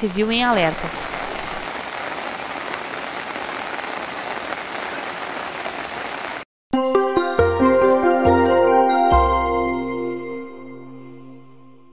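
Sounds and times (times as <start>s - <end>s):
steady rain hiss: 0.0s - 6.4s.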